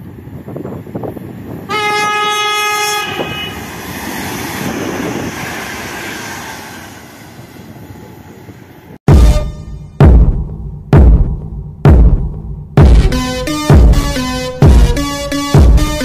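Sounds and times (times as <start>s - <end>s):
train wheels rumbling on track: 0.0s - 9.0s
train horn blast: 1.7s - 3.8s, 9.1s - 9.9s.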